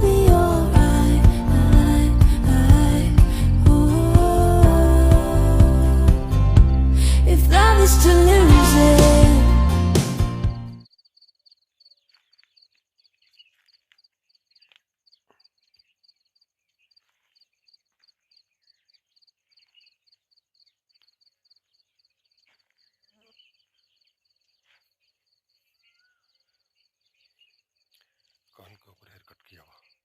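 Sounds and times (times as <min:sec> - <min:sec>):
insect chirping: 0:10.9 - 0:28.4.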